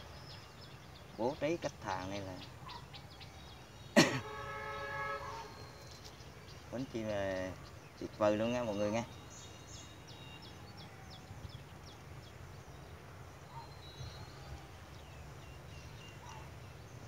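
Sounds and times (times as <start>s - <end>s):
small birds chirping: 0.0s - 17.0s
thin whistled bird notes: 4.6s - 12.1s, 12.7s - 17.0s.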